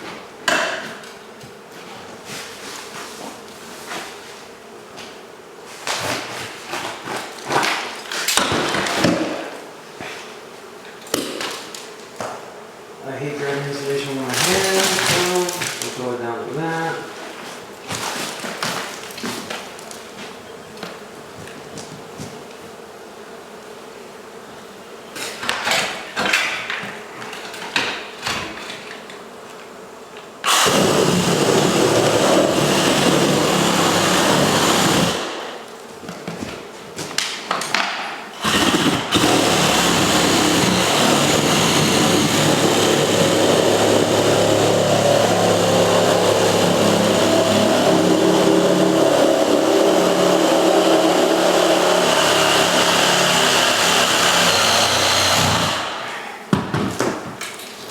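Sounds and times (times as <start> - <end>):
loud steady motor: 30.5 - 35.4, 38.4 - 56.0.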